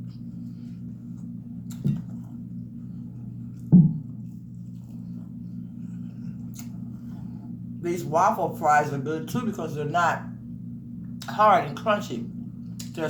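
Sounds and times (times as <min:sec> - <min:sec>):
steady low hum: 0:00.0 - 0:13.0
eating clicks and smacks: 0:01.6 - 0:02.3, 0:06.4 - 0:06.8, 0:12.6 - 0:13.0.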